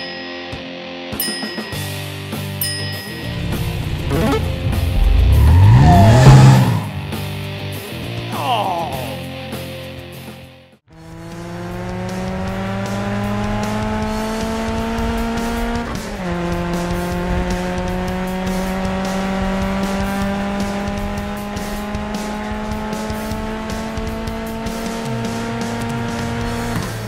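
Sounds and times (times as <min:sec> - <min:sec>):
background music: 0:00.0 - 0:10.7, 0:11.3 - 0:27.0
sports car engine accelerating: 0:03.3 - 0:07.8, 0:10.9 - 0:27.0.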